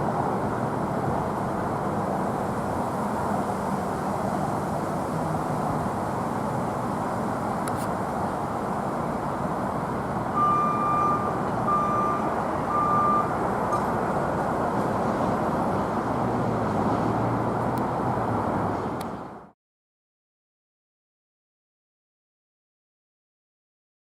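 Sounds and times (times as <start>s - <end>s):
backup alarm beeping: 10.4s - 13.8s.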